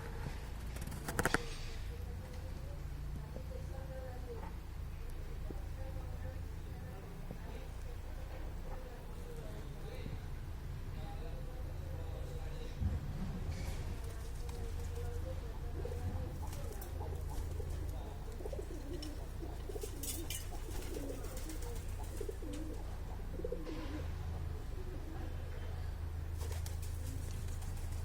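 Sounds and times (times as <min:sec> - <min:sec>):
pigeon cooing: 0:15.8 - 0:24.1.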